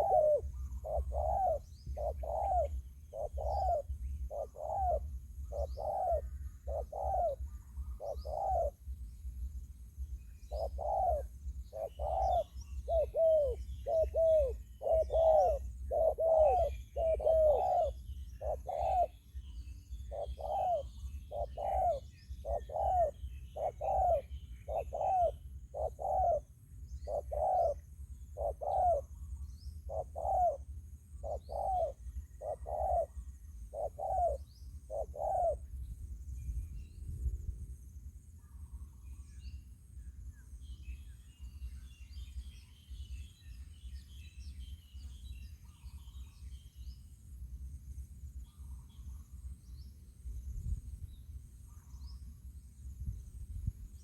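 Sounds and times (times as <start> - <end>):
dove cooing: 0.0 - 8.9, 10.5 - 19.2, 20.0 - 29.2, 29.8 - 35.7
small birds chirping: 0.0 - 37.4.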